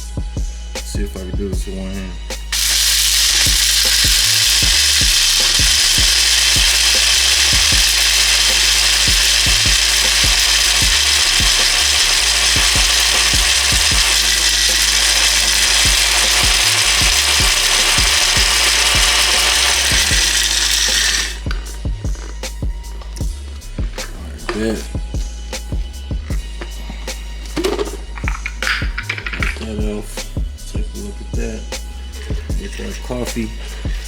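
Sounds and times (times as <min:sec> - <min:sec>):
blender running: 0:02.6 - 0:22.3.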